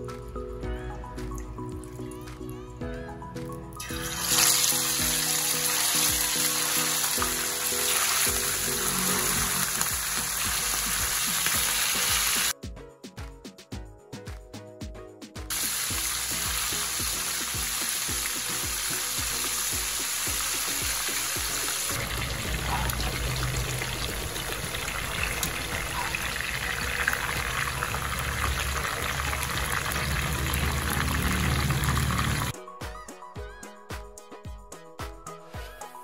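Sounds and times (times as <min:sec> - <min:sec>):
fish frying in oil: 0:03.8 - 0:12.5, 0:15.5 - 0:32.5.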